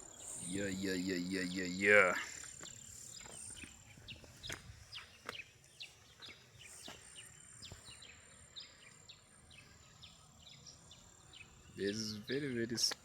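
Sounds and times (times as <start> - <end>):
high insect drone: 0.0 - 3.8.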